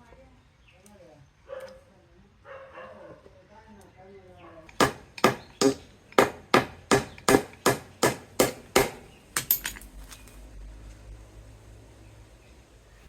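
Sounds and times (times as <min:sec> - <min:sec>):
hammer driving nails into wood: 0:04.7 - 0:09.8.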